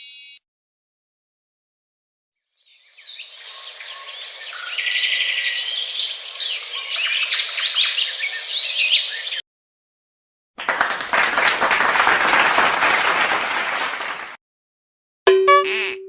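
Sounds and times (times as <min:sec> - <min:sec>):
birds chirping and singing: 0:02.6 - 0:09.4.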